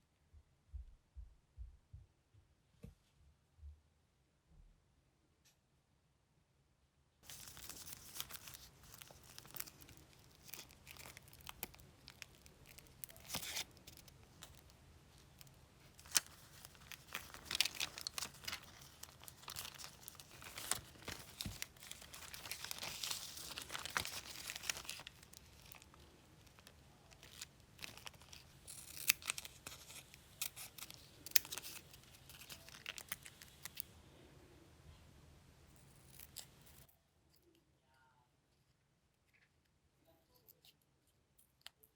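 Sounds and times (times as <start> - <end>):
crinkling and tearing rustles: 7.2 - 33.9.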